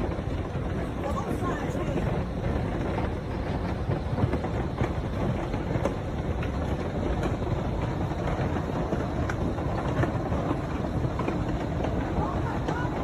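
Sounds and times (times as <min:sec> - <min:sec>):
hailstones striking: 0:00.0 - 0:13.0
heavy rain: 0:11.0 - 0:13.0.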